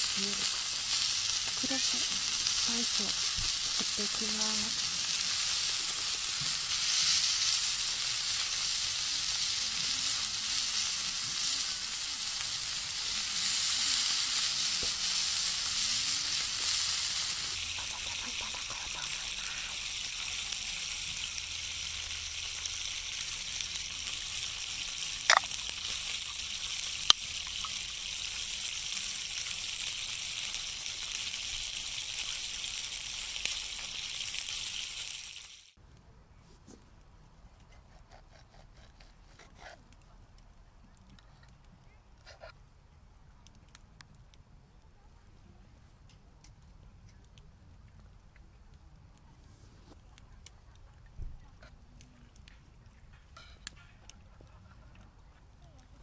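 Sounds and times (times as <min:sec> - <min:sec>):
food sizzling in a hot pan: 0:00.0 - 0:35.8, 0:53.4 - 0:54.0.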